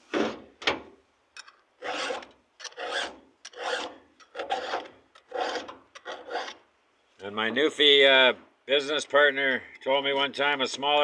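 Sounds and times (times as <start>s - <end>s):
file rasping on chain tooth: 1.8s - 6.6s.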